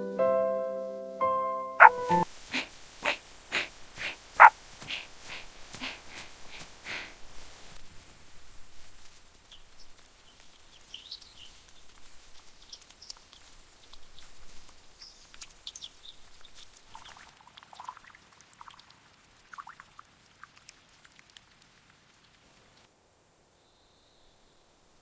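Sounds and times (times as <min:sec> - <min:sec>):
small animals chirping: 0:01.8 - 0:07.0
soft hiss: 0:02.2 - 0:17.0.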